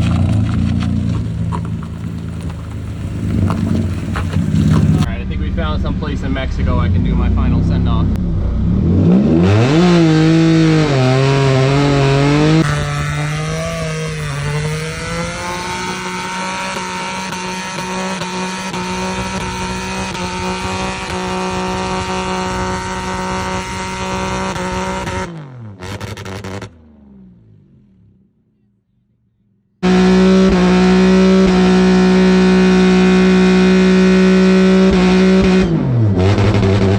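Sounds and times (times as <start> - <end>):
car engine revving hard: 6.8 - 26.9, 29.8 - 36.9.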